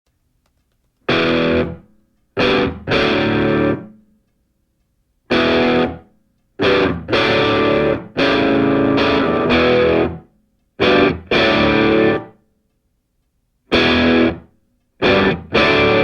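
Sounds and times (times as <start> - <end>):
distorted electric guitar chords: 1.1 - 4.0, 5.3 - 12.4, 13.7 - 16.0.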